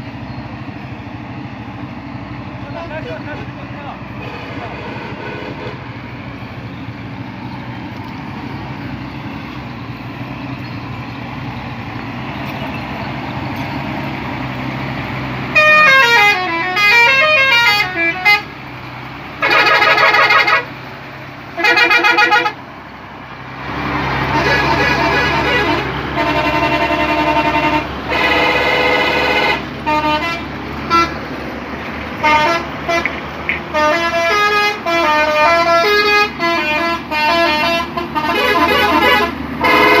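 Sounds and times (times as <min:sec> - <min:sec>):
truck engine running: 0:00.0 - 0:40.0
truck horn: 0:02.8 - 0:06.0, 0:15.5 - 0:18.6, 0:19.4 - 0:20.8, 0:21.5 - 0:22.6, 0:24.2 - 0:31.3, 0:32.2 - 0:40.0.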